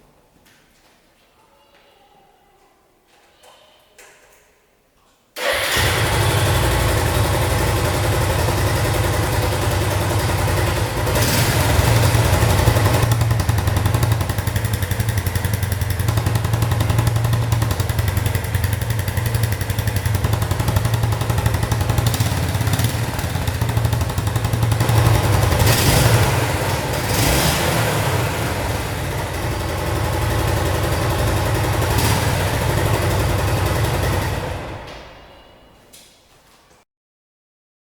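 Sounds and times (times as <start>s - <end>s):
motorcycle engine idling: 5.4s - 34.9s.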